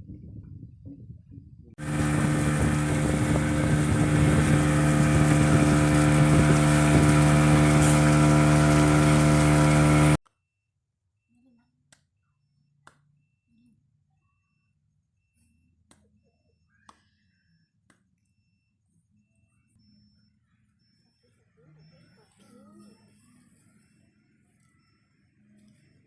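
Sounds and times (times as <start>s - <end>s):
engine running steadily: 1.8s - 10.2s.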